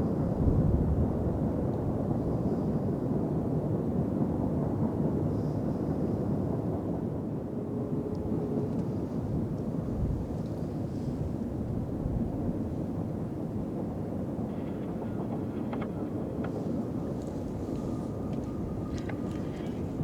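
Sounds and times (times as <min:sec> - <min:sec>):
freight train rumbling past: 0:07.1 - 0:20.0.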